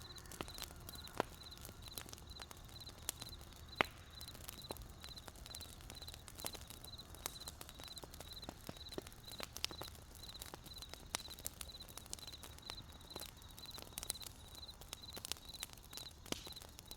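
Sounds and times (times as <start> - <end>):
cricket chirping: 0.0 - 16.9
wood fire crackling and popping: 0.0 - 16.9.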